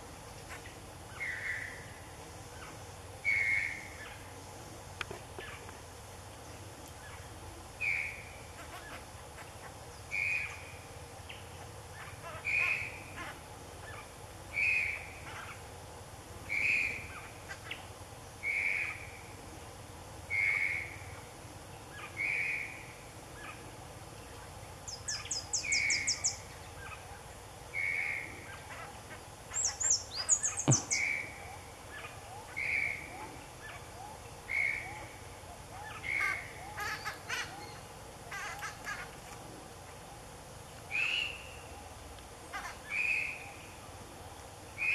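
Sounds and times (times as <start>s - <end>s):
bird call notes: 29.5s - 35.1s.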